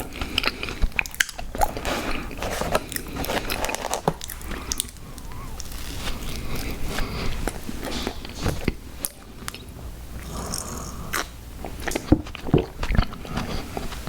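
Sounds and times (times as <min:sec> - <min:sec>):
crunching: 0:00.0 - 0:09.6
close chewing and mouth clicks: 0:00.0 - 0:14.0.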